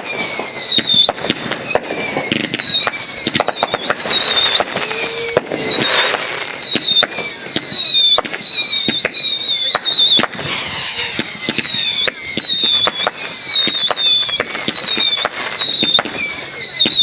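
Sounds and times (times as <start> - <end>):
firework bangs and crackles: 0.0 - 17.0
whistling firework shells: 0.0 - 17.0.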